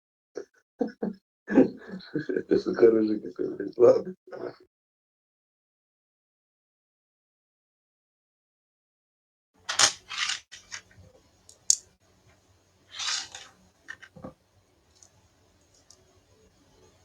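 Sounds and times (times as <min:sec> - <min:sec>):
scraping and rustling: 0:09.7 - 0:11.8, 0:12.9 - 0:14.4
sharp clicks: 0:09.7 - 0:12.0.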